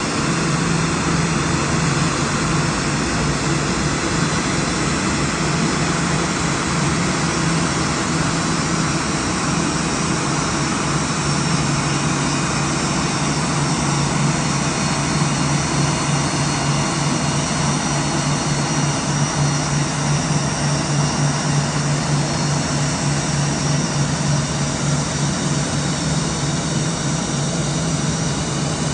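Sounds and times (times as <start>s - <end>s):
jet engines running: 0.0s - 28.9s.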